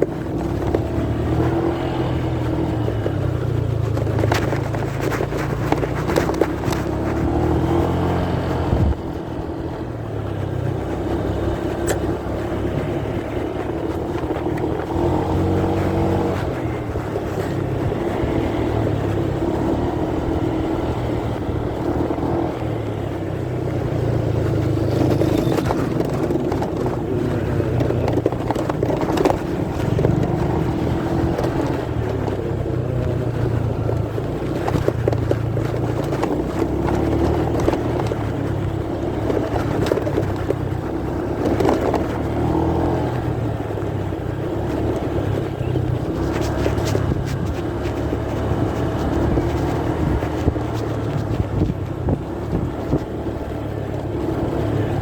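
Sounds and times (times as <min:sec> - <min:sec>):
muffled motorcycle engine: 0:00.0 - 0:55.0
wind: 0:00.0 - 0:55.0
cloth rubbing on microphone: 0:03.7 - 0:09.0.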